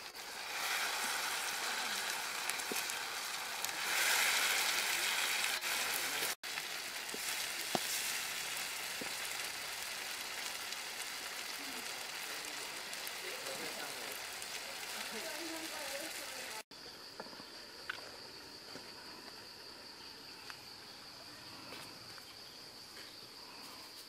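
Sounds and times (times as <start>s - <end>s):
spatula stirring in wok: 0.0s - 12.2s
food sizzling in hot oil: 0.0s - 18.4s.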